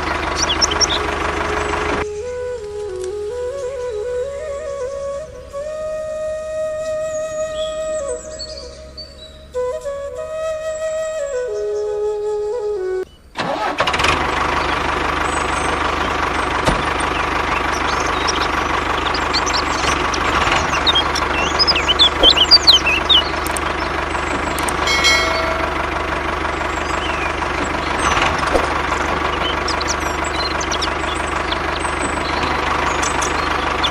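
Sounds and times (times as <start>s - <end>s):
tractor engine idling with knock: 0.0s - 4.0s, 13.4s - 33.9s
short high chirps: 24.8s - 25.9s.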